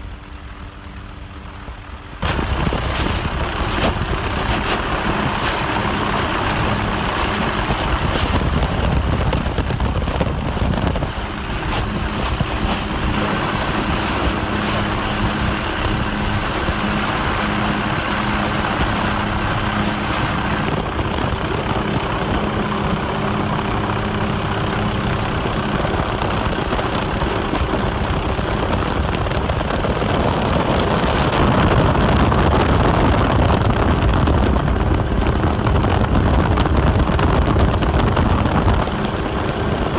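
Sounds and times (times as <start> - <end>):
aircraft engine drone: 0.0 - 39.9
rushing noise: 2.2 - 20.7.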